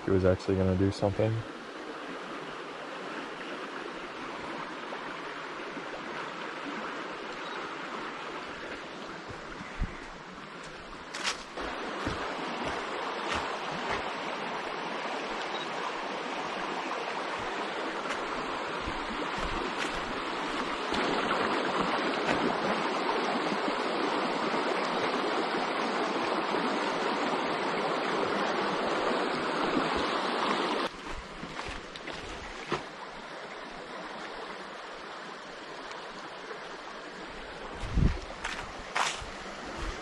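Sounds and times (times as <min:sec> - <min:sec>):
flowing water rushing: 0:00.0 - 0:40.0.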